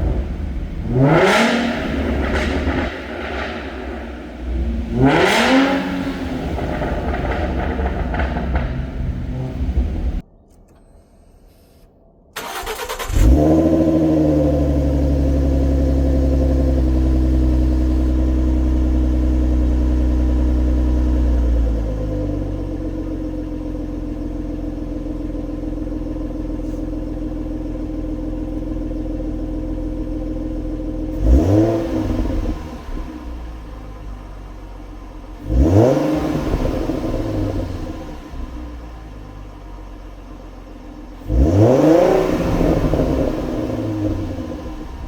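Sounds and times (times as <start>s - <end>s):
engine throttle blip: 0.0s - 13.8s
car engine idling: 0.0s - 45.0s
car engine starting: 0.0s - 45.0s.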